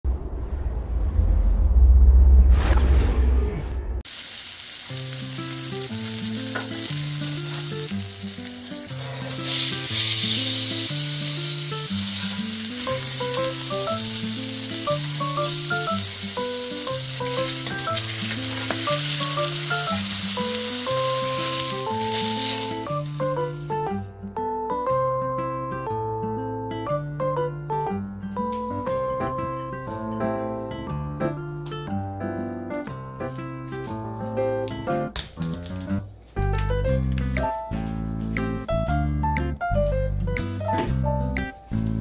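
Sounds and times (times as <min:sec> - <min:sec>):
fish sizzling in a pan: 0:04.1 - 0:23.8
light background music: 0:05.0 - 0:42.0.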